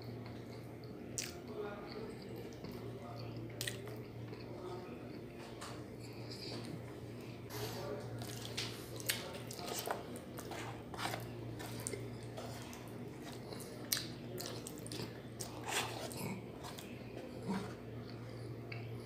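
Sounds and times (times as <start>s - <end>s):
low steady hum: 0.0s - 19.0s
wet chewing and mouth smacks: 0.2s - 2.8s, 3.6s - 4.5s, 8.2s - 17.4s.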